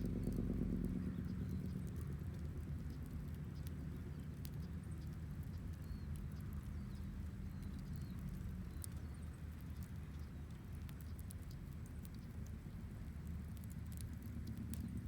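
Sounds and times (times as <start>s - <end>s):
low fire rumble: 0.0s - 15.0s.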